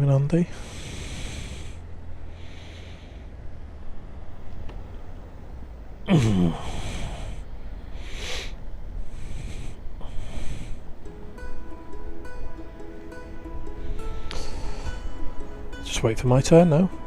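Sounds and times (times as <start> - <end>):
short breaths: 0.5 - 3.6, 6.1 - 15.8
voiced sigh: 6.0 - 15.9
background music: 9.3 - 17.0.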